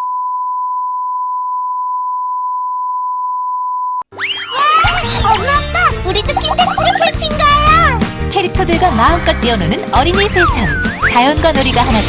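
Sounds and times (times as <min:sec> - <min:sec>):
music with whistle-like sweeps: 0:10.2 - 0:11.3.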